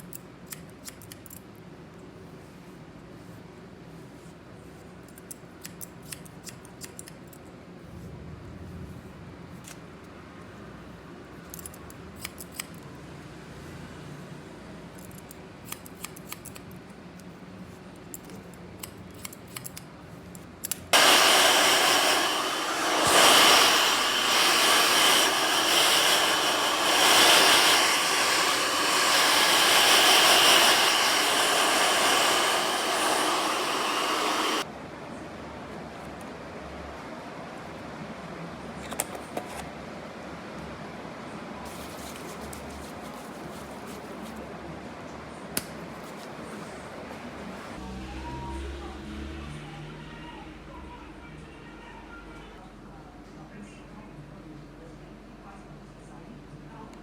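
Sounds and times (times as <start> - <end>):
scissors snipping: 0.0 - 1.4, 5.1 - 7.4, 15.1 - 16.7, 18.2 - 19.8.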